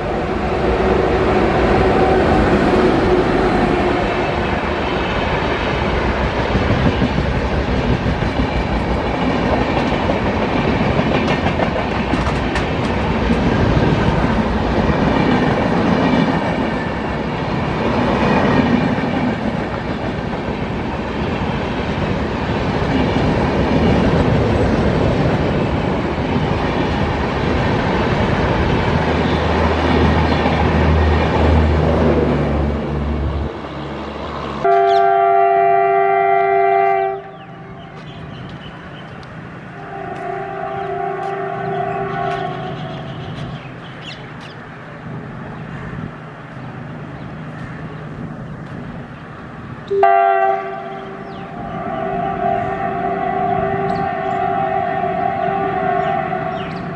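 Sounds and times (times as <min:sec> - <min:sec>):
train wheels clattering on rails: 0:00.0 - 0:32.5, 0:37.3 - 0:49.2.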